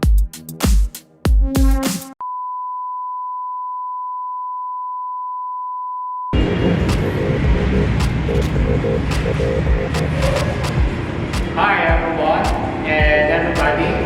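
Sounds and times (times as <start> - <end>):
electronic music with heavy beat: 0.0 - 2.2, 6.4 - 14.0
steady pure beep: 2.2 - 11.0
dense loud rumbling: 6.4 - 13.6.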